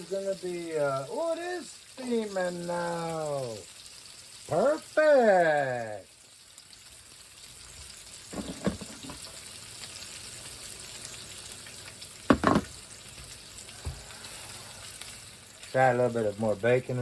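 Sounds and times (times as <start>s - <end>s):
bacon sizzling in a frying pan: 0.0s - 17.0s
short knocks or clatters: 8.3s - 9.2s, 12.3s - 12.7s.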